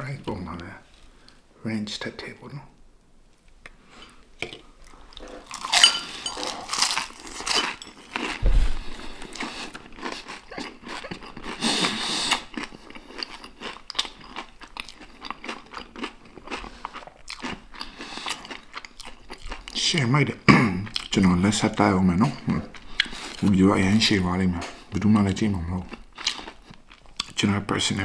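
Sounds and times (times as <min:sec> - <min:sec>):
crunching fried chicken: 0:05.0 - 0:20.0.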